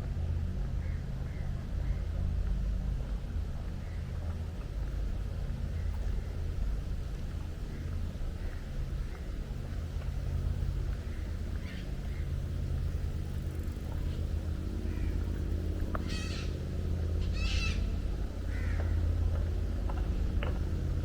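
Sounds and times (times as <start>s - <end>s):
low machine hum: 0.0s - 21.0s
harsh bird calls: 16.0s - 19.0s.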